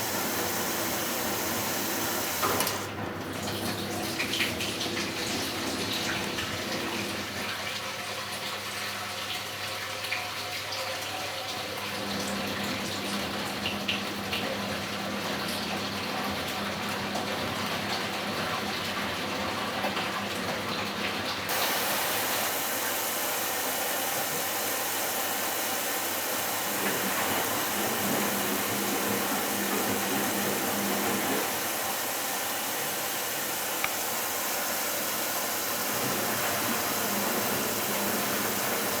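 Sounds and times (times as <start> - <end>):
water rushing into washing machine: 0.0 - 39.0
low machine hum: 21.5 - 39.0.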